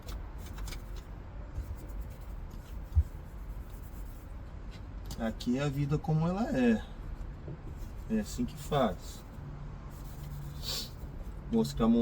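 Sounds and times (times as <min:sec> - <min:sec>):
rubbing and scraping: 0:00.0 - 0:04.4, 0:09.9 - 0:11.4.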